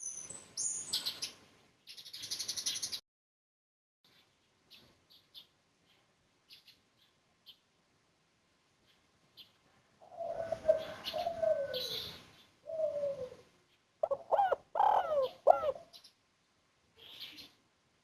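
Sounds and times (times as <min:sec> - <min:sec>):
dove cooing: 0:10.0 - 0:15.9.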